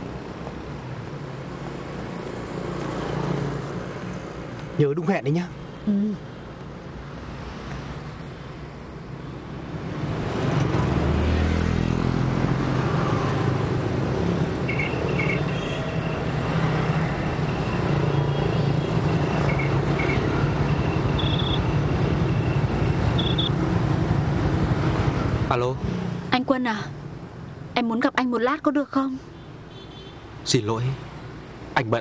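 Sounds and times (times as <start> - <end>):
street traffic: 0.0 - 32.0
mobile phone ringing beeps: 14.7 - 15.4, 19.3 - 21.6, 23.2 - 23.5.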